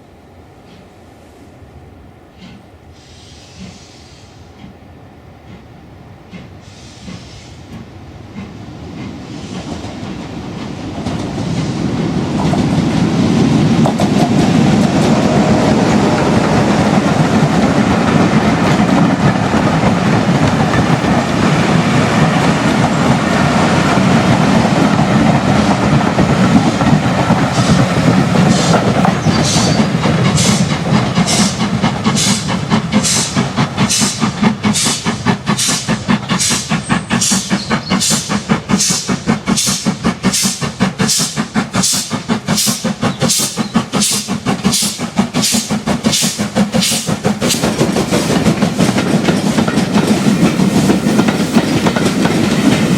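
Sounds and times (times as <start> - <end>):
steam locomotive rumble: 0.0 - 52.9
locomotive exhaust beats: 11.0 - 52.9.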